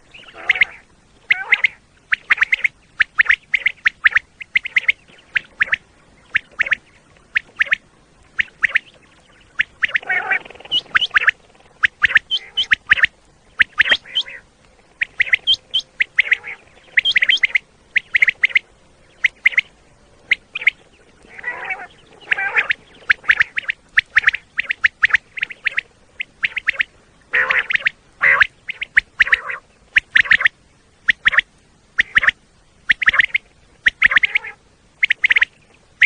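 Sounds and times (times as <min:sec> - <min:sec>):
harsh rough bird calls: 0:00.0 - 0:30.5
quail calling: 0:00.0 - 0:36.0.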